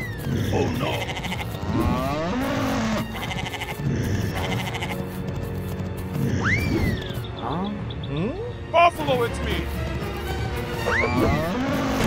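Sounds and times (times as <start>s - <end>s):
animal bleating sound effects: 0.0s - 5.2s
cartoon background music: 0.0s - 12.0s.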